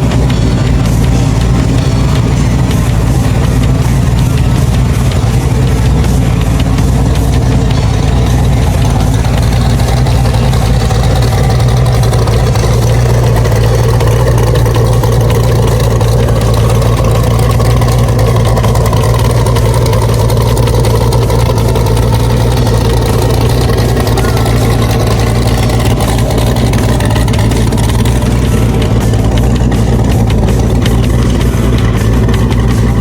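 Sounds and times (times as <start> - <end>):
car engine running steadily: 0.0 - 33.0.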